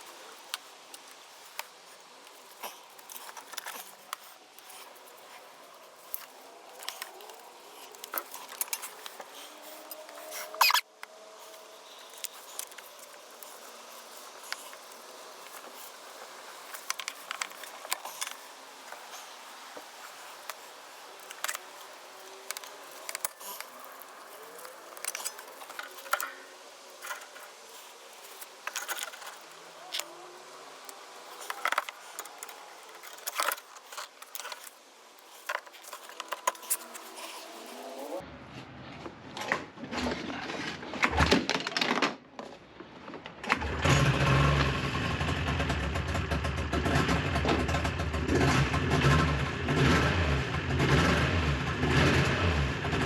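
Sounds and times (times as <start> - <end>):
light scratching: 0.0 - 38.2
steady hiss: 0.0 - 38.2
metal tools clinking: 2.6 - 10.8.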